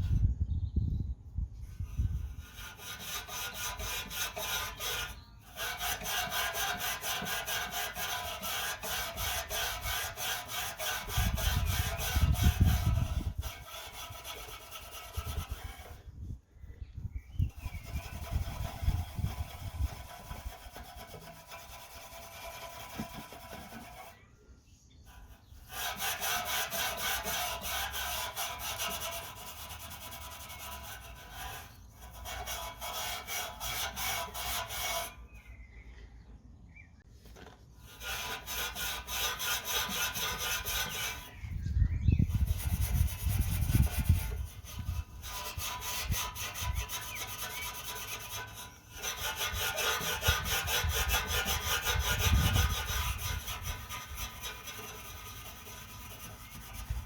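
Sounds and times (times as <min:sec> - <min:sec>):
wire wool scrubbing metal: 0:02.4 - 0:16.0, 0:17.5 - 0:24.2, 0:25.1 - 0:35.2, 0:37.8 - 0:41.4, 0:42.3 - 0:57.0.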